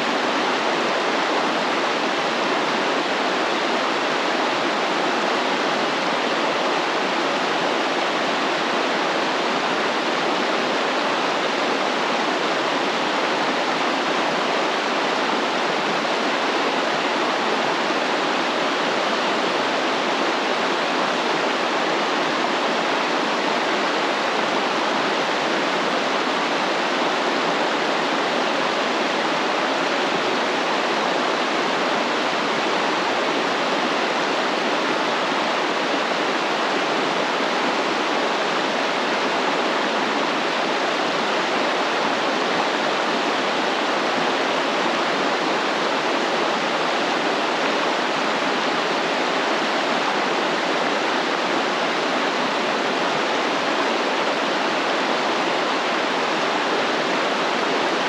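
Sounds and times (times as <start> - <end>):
stream water flowing: 0.0 - 58.0.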